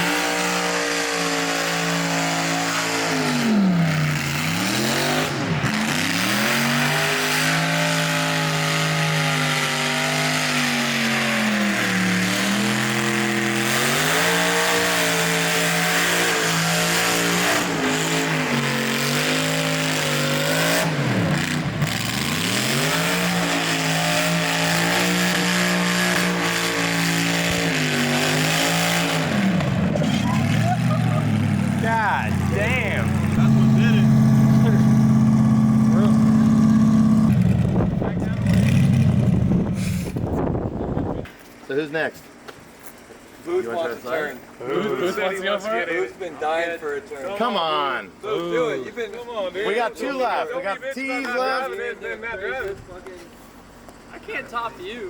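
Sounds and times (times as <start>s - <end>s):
car engine revving: 0.0s - 40.4s.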